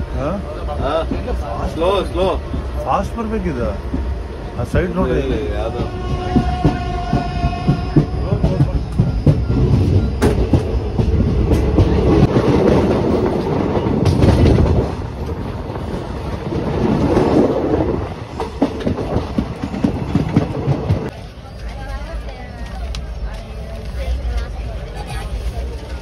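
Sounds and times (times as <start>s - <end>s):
train wheels rumbling on rails: 0.0s - 26.0s
clatter over rail joints: 4.9s - 23.5s.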